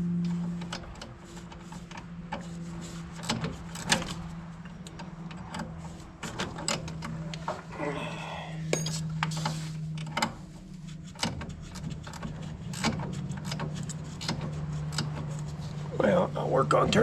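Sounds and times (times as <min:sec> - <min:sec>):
steady low hum: 0:00.0 - 0:17.0
tools clicking and knocking: 0:11.2 - 0:15.6.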